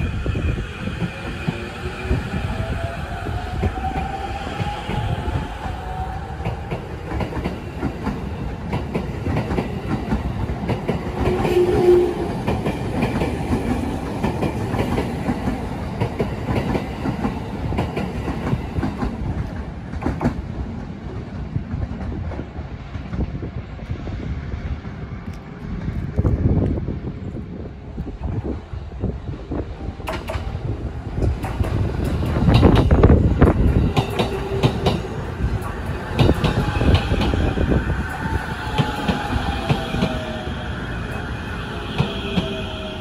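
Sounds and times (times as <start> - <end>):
train wheels clicking over rail joints: 31.2 - 37.6.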